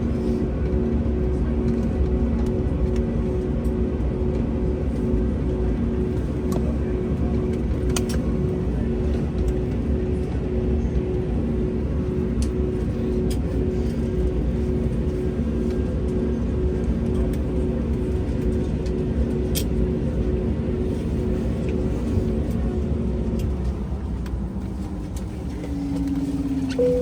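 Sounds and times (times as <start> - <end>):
vehicle interior rumble: 23.1 - 27.0
two-tone hum: 25.5 - 27.0.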